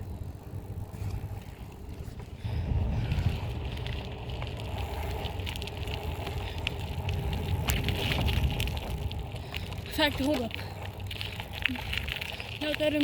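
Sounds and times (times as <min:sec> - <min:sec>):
wind on microphone: 0:02.1 - 0:09.9
small crackles and clicks: 0:03.0 - 0:13.0.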